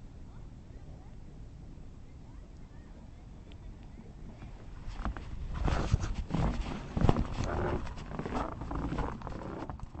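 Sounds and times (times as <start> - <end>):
footsteps crunching in snow: 4.8 - 9.7.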